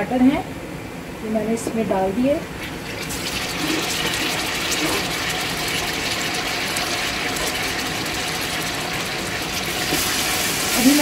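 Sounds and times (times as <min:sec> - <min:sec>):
tomatoes sizzling in hot oil: 0:02.6 - 0:11.0.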